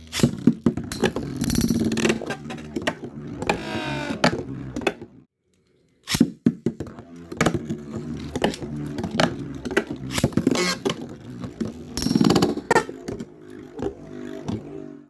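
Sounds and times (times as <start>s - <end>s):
spinning top whirring: 7.0s - 15.0s.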